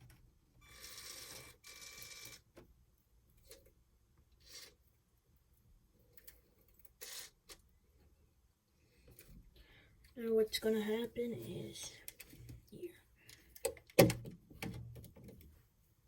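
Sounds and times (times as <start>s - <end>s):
small electric motor whirring: 0.6s - 2.4s.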